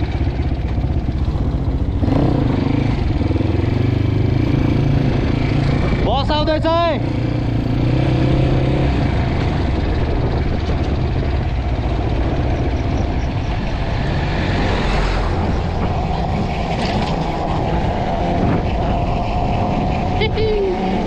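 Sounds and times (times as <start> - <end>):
dirt bike engine running: 0.0 - 21.0
wind noise on microphone: 0.0 - 21.0.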